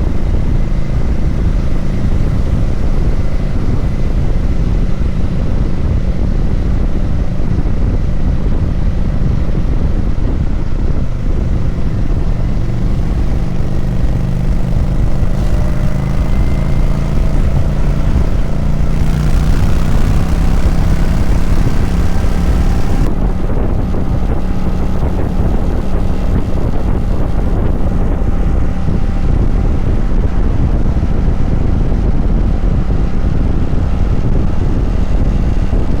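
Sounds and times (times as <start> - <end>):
motorcycle engine running: 0.0 - 36.0
wind rushing over microphone: 0.0 - 36.0.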